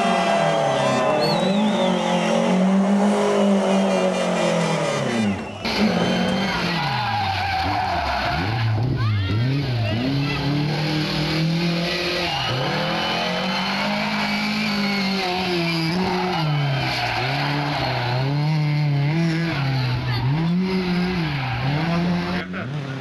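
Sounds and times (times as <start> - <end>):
rally car engine revving: 0.0 - 23.0
tyres squealing: 4.6 - 18.3.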